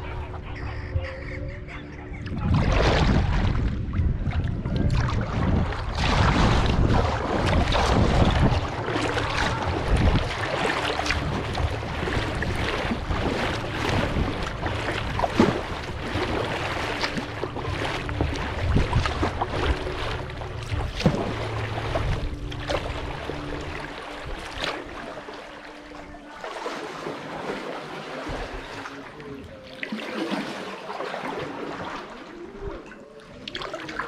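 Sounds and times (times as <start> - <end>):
wind buffeting the microphone: 2.1 - 23.5
water splashing around a kayak: 2.2 - 34.0.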